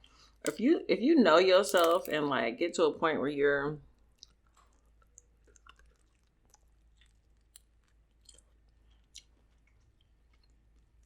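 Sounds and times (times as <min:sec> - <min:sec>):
faint chewing: 0:04.1 - 0:11.0.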